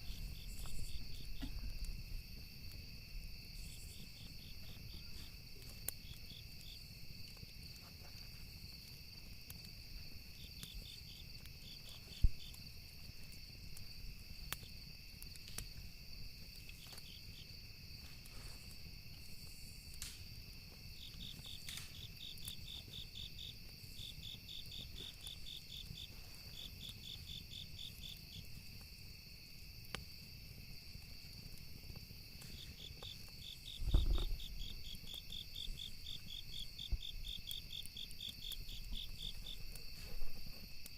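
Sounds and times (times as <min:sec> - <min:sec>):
burning wood crackling: 0:00.0 - 0:40.9
crickets chirping: 0:00.0 - 0:40.9
high insect drone: 0:00.0 - 0:40.9
low thud: 0:33.8 - 0:34.4.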